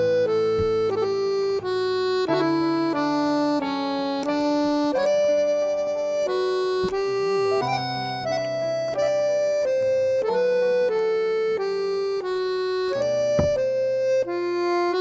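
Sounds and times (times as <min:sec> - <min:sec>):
accordion melody: 0:00.0 - 0:15.0
brief knock: 0:00.5 - 0:01.1, 0:13.3 - 0:13.7.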